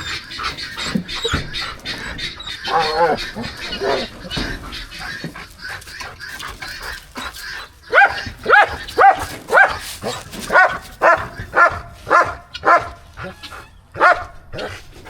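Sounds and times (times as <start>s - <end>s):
dog barking: 7.9s - 13.0s, 14.0s - 14.7s.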